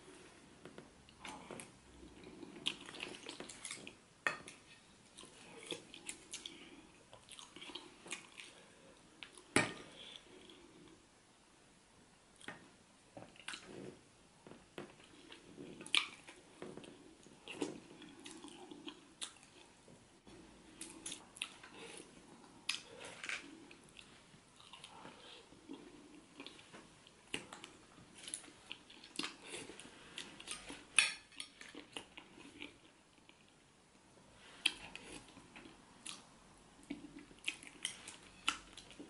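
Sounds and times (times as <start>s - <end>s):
person chewing wetly: 0.7s - 10.7s, 14.4s - 19.7s, 20.7s - 33.5s, 34.6s - 39.0s.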